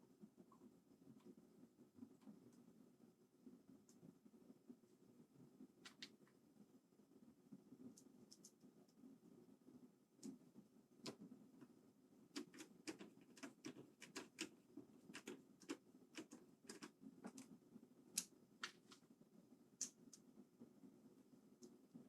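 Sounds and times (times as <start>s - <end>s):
faint clicks and taps of small parts: 5.8s - 6.4s, 7.9s - 9.0s, 10.2s - 19.1s, 19.7s - 20.4s.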